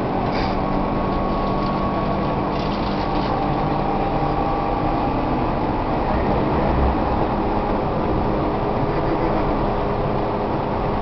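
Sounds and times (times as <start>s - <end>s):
motors and gears humming: 0.0s - 6.3s
electric train rumbling: 0.0s - 11.0s.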